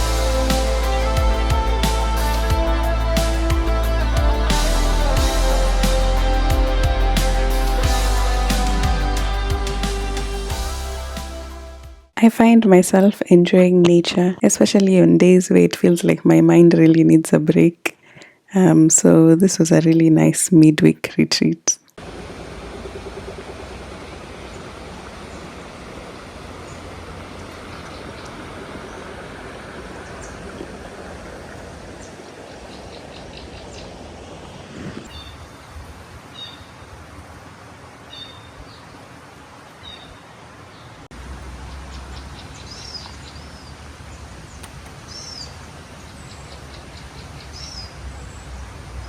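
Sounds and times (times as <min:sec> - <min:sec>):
steady background hiss: 0:22.0 - 0:49.0
bird chirps: 0:44.5 - 0:48.0.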